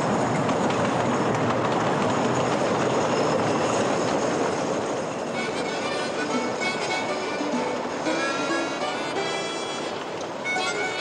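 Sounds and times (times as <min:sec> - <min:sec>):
diesel train running: 0:00.0 - 0:11.0
music: 0:05.3 - 0:11.0.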